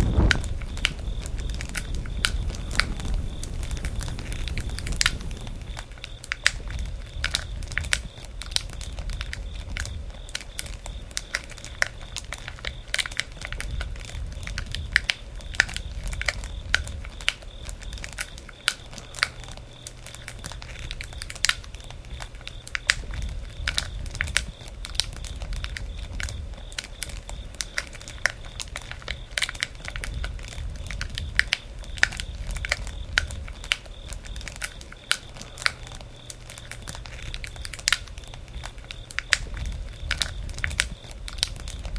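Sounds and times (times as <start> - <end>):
campfire crackling: 0.0 - 5.9.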